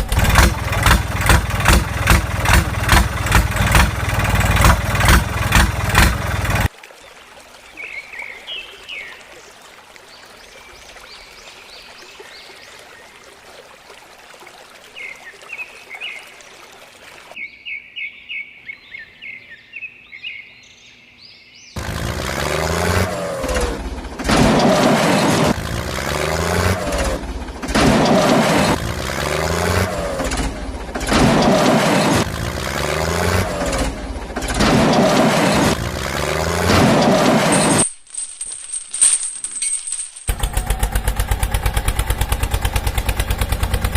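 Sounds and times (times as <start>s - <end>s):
birds chirping: 17.4s - 21.9s.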